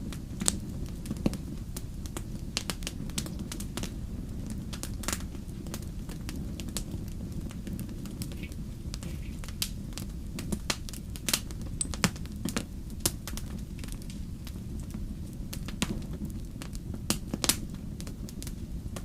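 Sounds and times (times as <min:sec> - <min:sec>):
steady low rumble: 0:00.0 - 0:19.0
wood fire crackling: 0:00.0 - 0:19.0.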